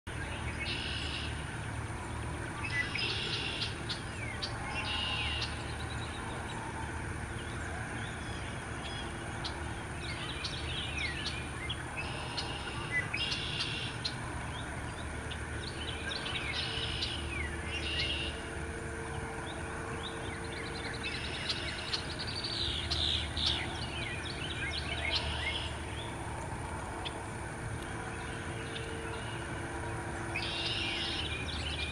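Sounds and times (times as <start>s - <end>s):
birds chirping: 7.2s - 26.4s, 27.0s - 31.9s.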